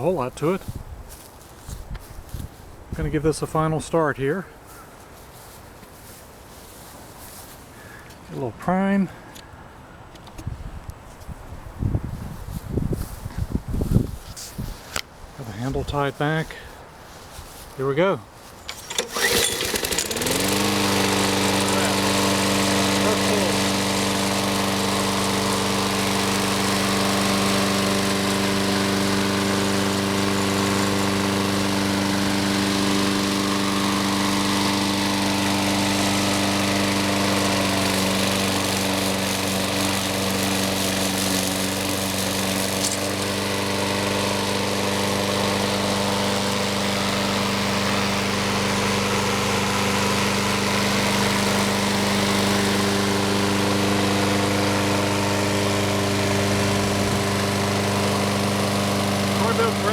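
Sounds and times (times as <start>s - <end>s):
lawn mower engine running: 18.4s - 59.9s.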